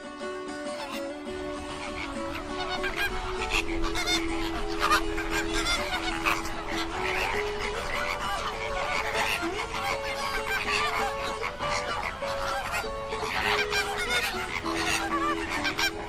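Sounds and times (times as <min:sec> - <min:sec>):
background melody: 0:00.0 - 0:16.0
flamingos honking: 0:00.4 - 0:16.0.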